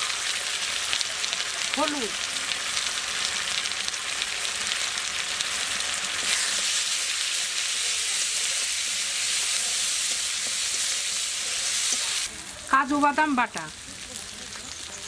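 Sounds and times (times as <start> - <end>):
spice paste sizzling in oil: 0.0 - 15.0
spatula stirring in metal pan: 6.0 - 12.3.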